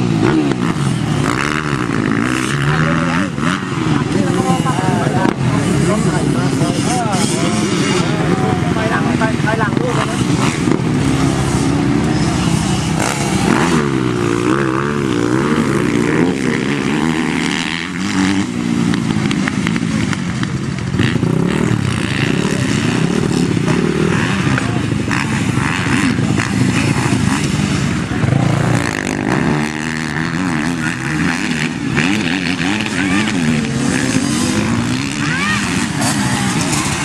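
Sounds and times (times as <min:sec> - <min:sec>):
dirt bike engines revving: 0:00.0 - 0:37.0.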